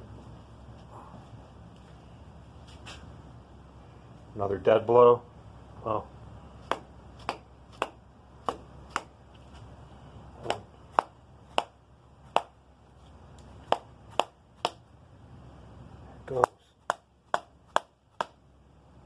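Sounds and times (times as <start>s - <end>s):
hammer tapping wooden handle: 6.7s - 9.1s, 16.4s - 18.4s.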